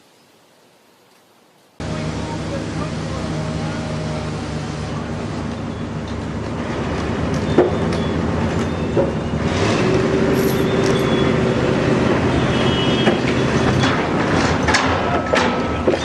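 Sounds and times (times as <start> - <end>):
engine running: 1.8 - 12.5.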